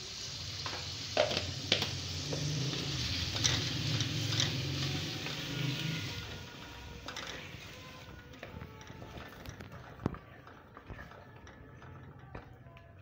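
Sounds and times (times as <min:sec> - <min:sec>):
potatoes sizzling in hot oil: 0:00.0 - 0:09.8.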